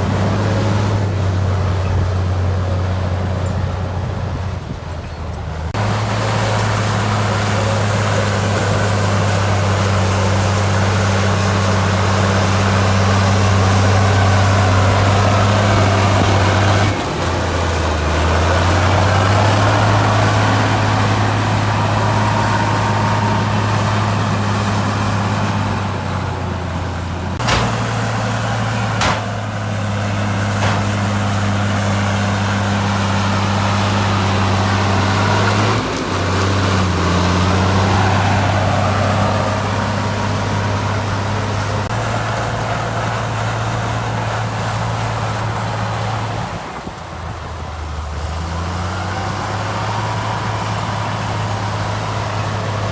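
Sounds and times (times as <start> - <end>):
diesel engine running: 0.0 - 52.9
sharp metallic knocks: 27.4 - 31.5.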